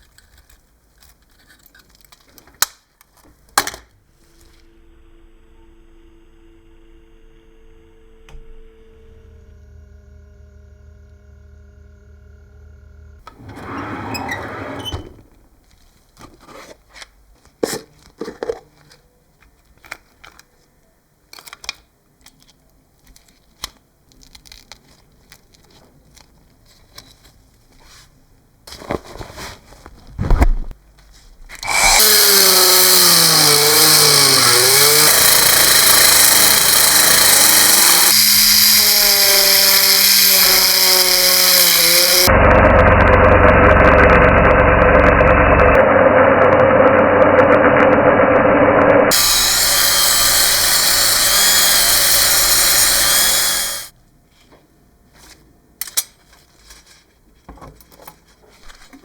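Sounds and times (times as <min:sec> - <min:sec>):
power tool running: 0:13.3 - 0:15.5, 0:31.6 - 0:53.9.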